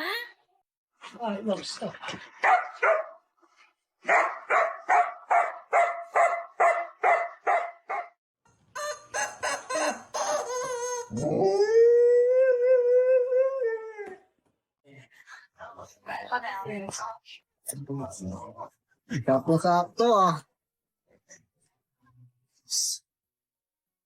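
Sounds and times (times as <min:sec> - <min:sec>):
dog barking: 0:02.4 - 0:03.2, 0:04.0 - 0:08.2
dog howling: 0:10.4 - 0:14.2.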